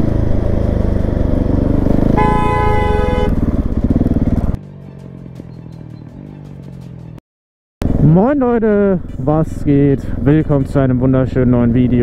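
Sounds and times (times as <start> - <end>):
motorcycle engine running: 0.0 - 7.2, 7.8 - 12.0
vehicle horn: 2.1 - 3.5.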